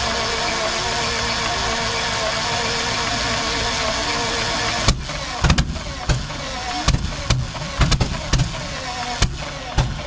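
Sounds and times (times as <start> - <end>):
engine coughing with firing pops: 4.9 - 10.0.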